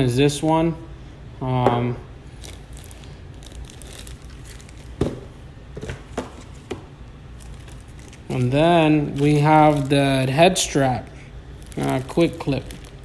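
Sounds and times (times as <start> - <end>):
plastic packaging crinkling: 2.4 - 6.7, 7.3 - 10.6, 11.5 - 13.0.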